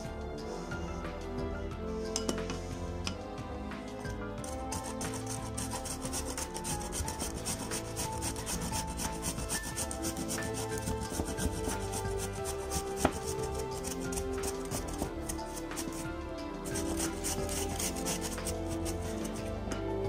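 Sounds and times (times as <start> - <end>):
soft background music: 0.0 - 20.0
blade scraping potato skin: 4.4 - 19.5.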